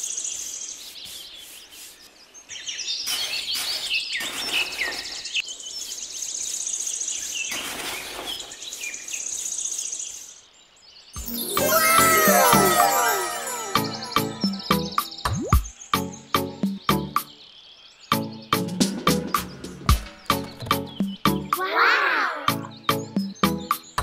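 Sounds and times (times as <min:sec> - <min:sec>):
birds chirping: 0:00.0 - 0:24.0
rustling noise: 0:07.2 - 0:09.5
music: 0:11.2 - 0:17.3, 0:18.1 - 0:21.6, 0:22.5 - 0:24.0.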